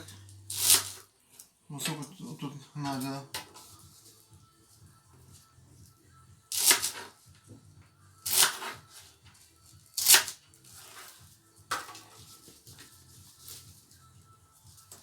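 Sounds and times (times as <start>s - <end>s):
crunchy cutting strokes: 0.5s - 1.0s, 6.5s - 7.1s, 8.2s - 9.1s, 9.8s - 11.2s.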